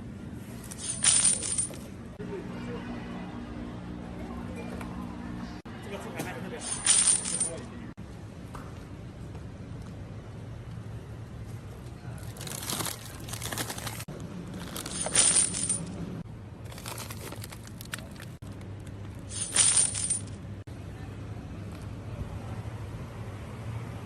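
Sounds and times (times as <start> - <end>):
packaging rustling: 12.2 - 15.3, 16.7 - 18.9
sharp packaging crinkle: 12.2 - 15.3, 16.7 - 18.9.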